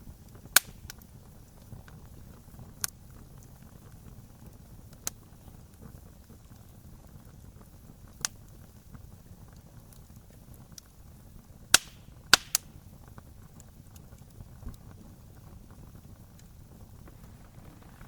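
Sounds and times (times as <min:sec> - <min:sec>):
campfire crackling: 0:00.0 - 0:18.0
wood popping and cracking: 0:11.7 - 0:18.0.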